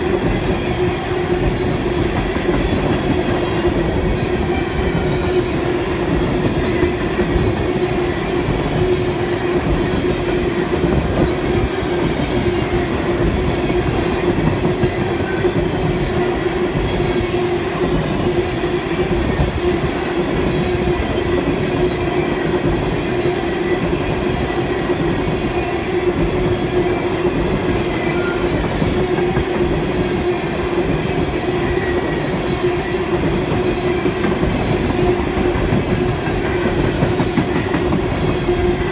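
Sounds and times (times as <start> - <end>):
train wheels clattering on rails: 0.0 - 38.9.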